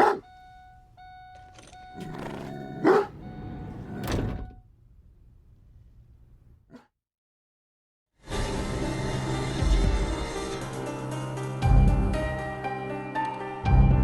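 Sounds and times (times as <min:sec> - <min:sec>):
dog barking: 0:00.0 - 0:00.3, 0:02.8 - 0:03.2, 0:06.7 - 0:06.9.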